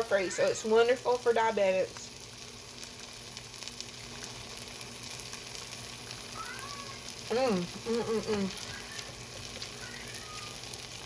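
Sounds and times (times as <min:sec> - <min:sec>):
food sizzling and crackling: 0:00.0 - 0:11.0
person humming: 0:07.3 - 0:08.8.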